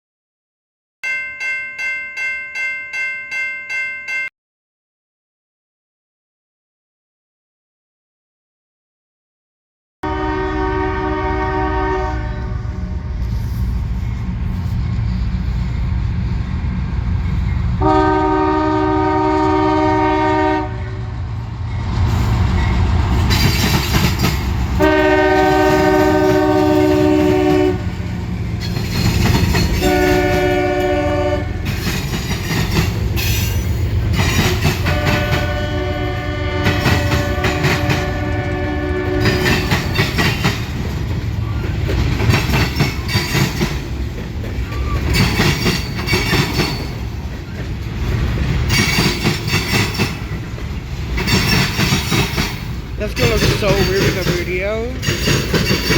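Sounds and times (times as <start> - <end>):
locomotive air horn: 10.0 - 13.4, 17.8 - 21.2, 24.8 - 27.9, 29.8 - 31.7, 34.8 - 39.6
train rumbling past: 10.0 - 55.9.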